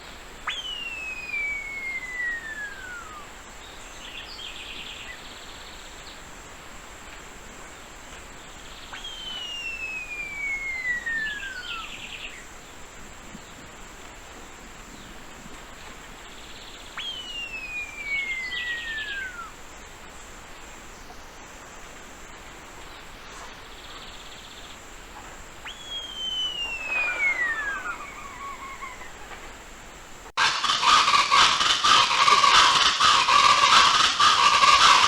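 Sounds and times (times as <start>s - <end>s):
bird whistles sliding down: 0.4s - 3.3s, 9.0s - 12.0s, 17.0s - 19.5s, 25.6s - 29.5s
thin high tone: 25.8s - 29.1s.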